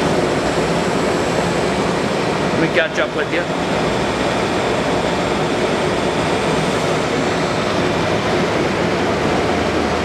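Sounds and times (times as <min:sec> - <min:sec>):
whirring machine hum: 0:00.0 - 0:10.0.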